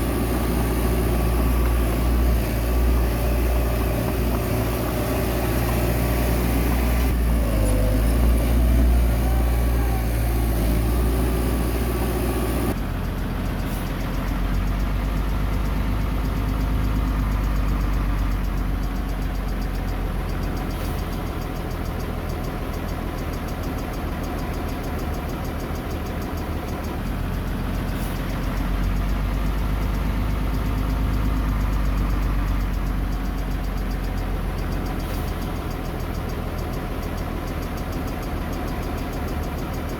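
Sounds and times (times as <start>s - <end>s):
diesel earthmoving machinery running: 0.0s - 39.9s.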